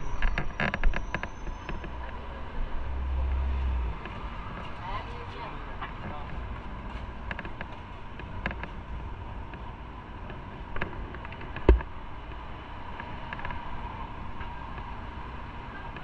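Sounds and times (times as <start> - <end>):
motorcycle engine rumble: 10.4 - 12.4
sharp thump: 11.6 - 11.9.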